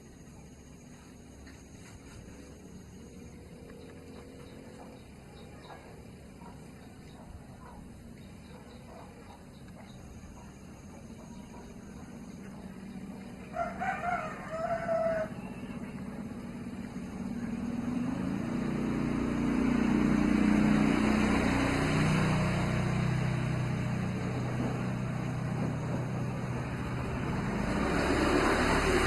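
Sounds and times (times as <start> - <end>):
vehicle engine: 0.0 - 29.0
rooster crowing: 13.5 - 15.5.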